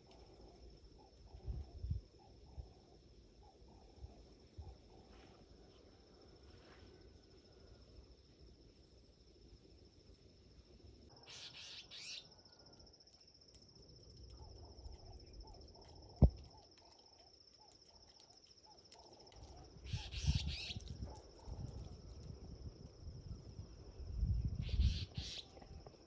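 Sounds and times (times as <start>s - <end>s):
insect trill: 5.9s - 26.0s
bird chirps: 11.2s - 12.4s, 19.9s - 20.9s, 24.5s - 25.5s.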